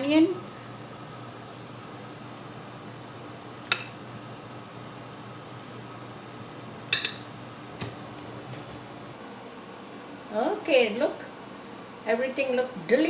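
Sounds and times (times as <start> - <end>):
low background hum: 0.0 - 13.0
utensils clinking against dishes: 3.7 - 4.0, 6.9 - 7.3.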